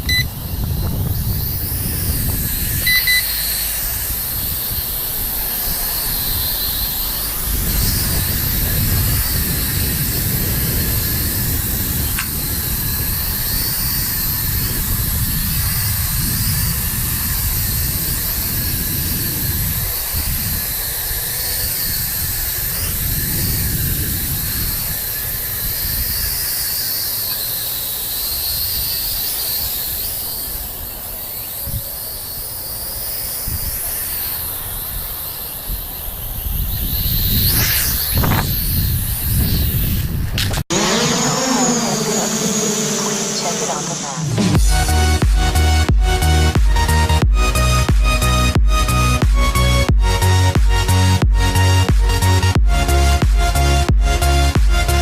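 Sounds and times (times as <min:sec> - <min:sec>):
short electronic beep: 0:00.0 - 0:00.3, 0:02.8 - 0:03.4
wind rumbling on microphone: 0:00.0 - 0:42.9
quadcopter motors whining: 0:00.0 - 0:55.0.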